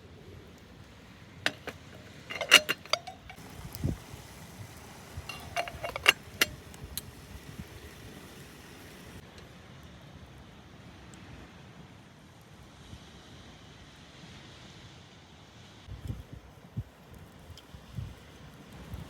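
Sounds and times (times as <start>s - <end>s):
hard objects clicking: 1.5s - 8.9s.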